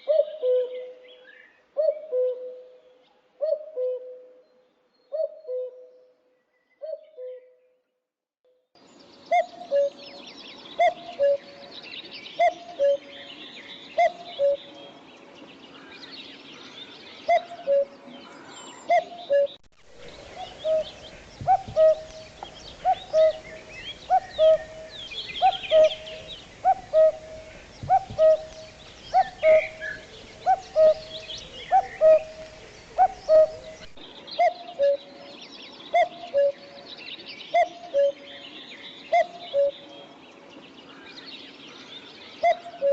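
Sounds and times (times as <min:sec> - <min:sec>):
birds chirping: 0:08.8 - 0:42.9.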